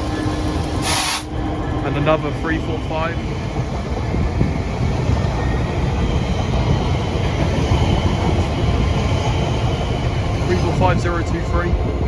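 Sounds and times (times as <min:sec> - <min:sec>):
train hiss: 0:00.0 - 0:01.5
train wheels rumbling on rail: 0:00.0 - 0:12.0.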